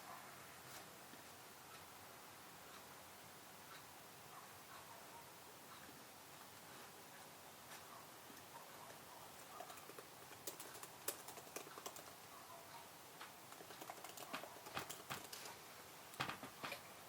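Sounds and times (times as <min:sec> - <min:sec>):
faint computer keyboard typing: 0:08.3 - 0:16.8.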